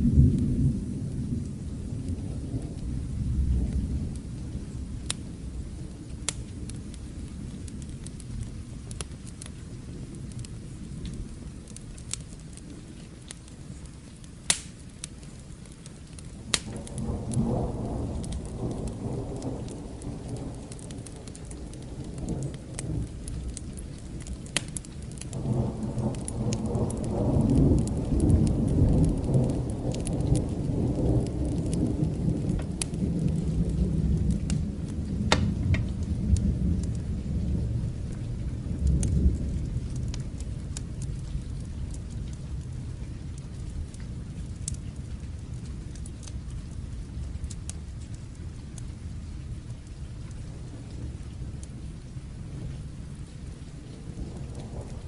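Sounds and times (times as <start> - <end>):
distant thunder rumbling: 0.0 - 8.8, 16.2 - 44.4, 49.2 - 55.0
fire crackling: 0.0 - 55.0
rain hissing: 0.0 - 55.0.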